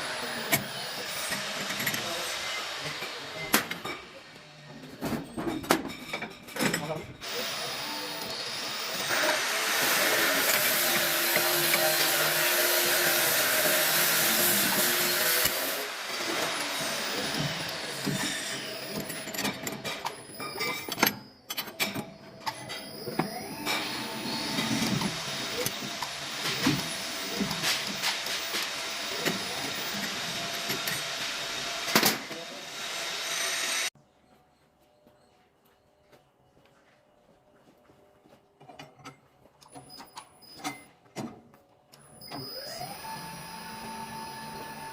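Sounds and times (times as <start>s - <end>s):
metalworking machine whirring: 0.0s - 4.3s, 7.2s - 33.9s, 42.0s - 44.9s
metal bending machine humming: 7.3s - 19.6s.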